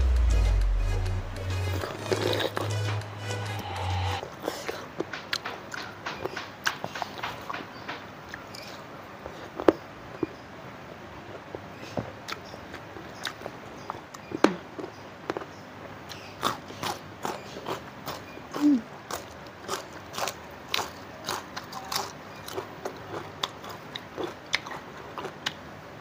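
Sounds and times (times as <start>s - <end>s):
crisp bites and wet chewing: 16.1s - 25.6s.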